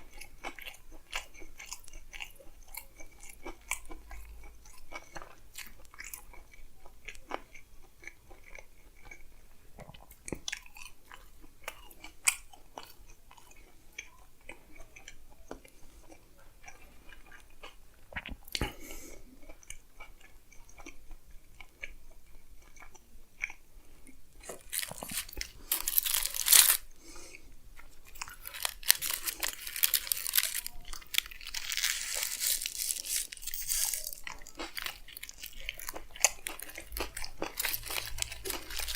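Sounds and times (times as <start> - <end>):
close chewing and biting: 0.0 - 38.9
paper wrapper crinkling: 24.5 - 26.8, 28.1 - 38.9
wet mouth clicks: 33.0 - 38.9.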